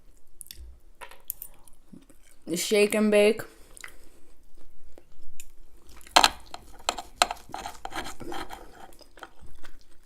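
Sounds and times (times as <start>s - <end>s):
person chewing food: 3.7s - 10.0s.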